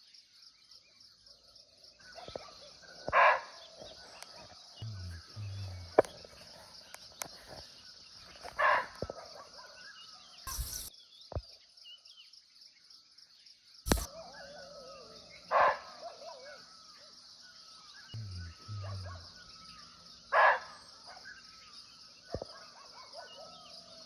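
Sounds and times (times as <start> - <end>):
high insect drone: 3.8 - 9.2, 10.4 - 10.9, 13.9 - 22.6.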